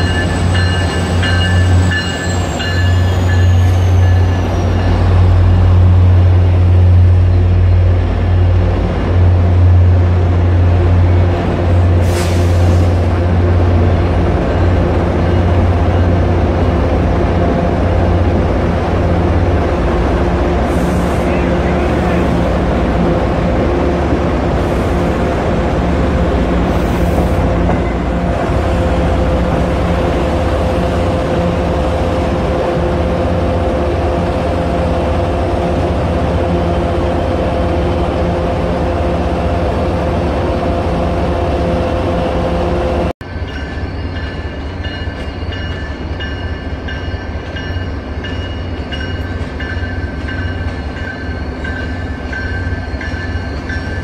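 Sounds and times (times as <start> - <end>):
high wheel squeal: 0.0 - 5.1
train rumble with humming engine: 0.0 - 54.0.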